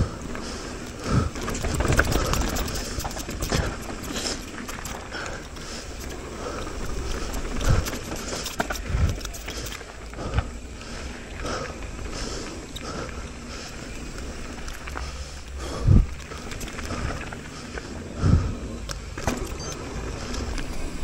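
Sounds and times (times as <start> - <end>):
bike thumping over bumps: 0.0 - 12.1
bike tyres rolling and rattling: 0.0 - 21.0
low rumble: 14.1 - 19.2.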